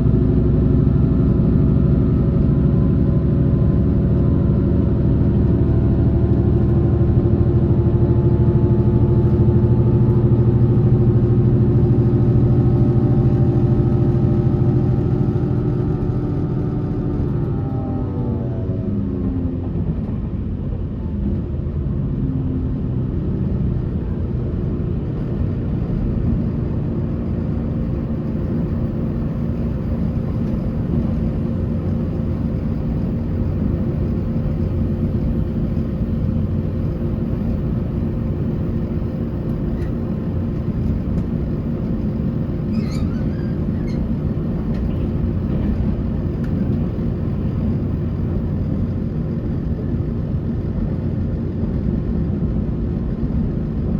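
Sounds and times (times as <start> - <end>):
constant low hum: 0.0 - 53.9
train wheels rumbling on rail: 0.0 - 53.9
faint brief squeaks: 42.6 - 44.2.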